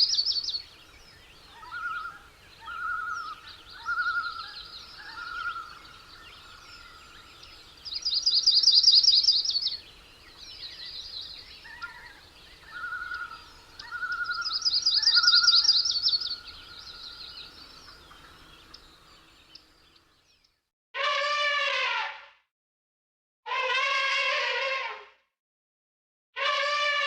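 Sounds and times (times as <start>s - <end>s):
birds chirping: 0.0s - 20.6s
low bird call: 11.6s - 18.8s
bird trilling high-pitched: 12.7s - 16.3s.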